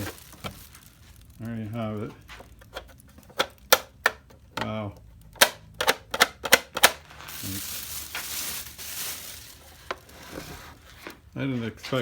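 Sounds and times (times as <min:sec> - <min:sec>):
packaging rustling: 0:00.0 - 0:03.7, 0:06.8 - 0:11.3
knocks and clicks of handling: 0:02.2 - 0:07.0.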